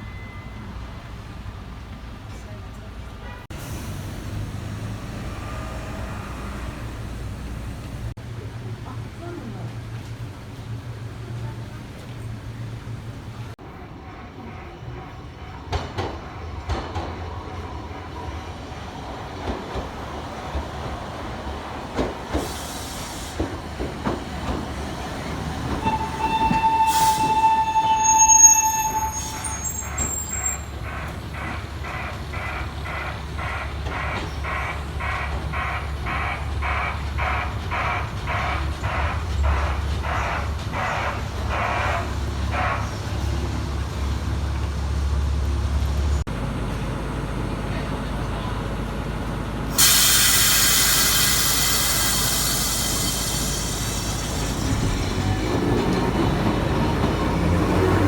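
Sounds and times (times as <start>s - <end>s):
steam train chuffing: 3.5s - 58.0s
steam train whistle: 25.6s - 30.8s.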